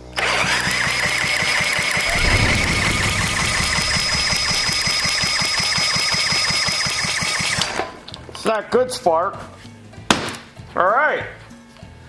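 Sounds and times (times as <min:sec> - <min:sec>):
engine turning with rapid ticking: 0:02.0 - 0:07.6.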